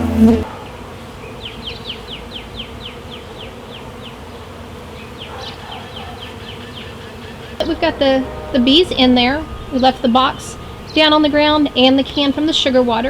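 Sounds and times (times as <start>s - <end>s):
loud low hum: 0.0s - 0.5s, 7.6s - 13.0s
bees buzzing: 0.0s - 5.3s, 6.0s - 13.0s.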